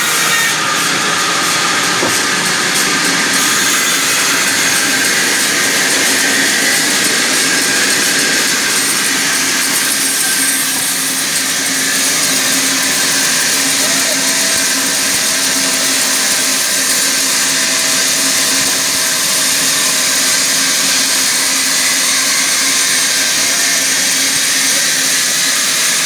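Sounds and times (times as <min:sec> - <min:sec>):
sawmill saw cutting timber: 0:00.0 - 0:26.0.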